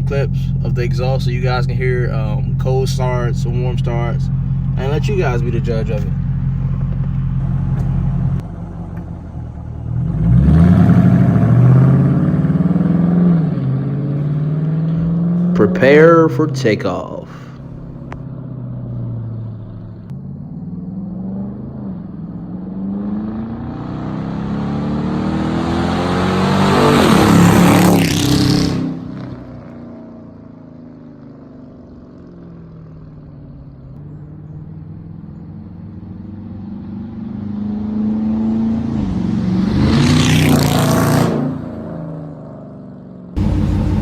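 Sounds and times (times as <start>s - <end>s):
steady engine sound: 0.0s - 41.2s, 43.4s - 44.0s
car exhaust accelerating past: 0.0s - 44.0s.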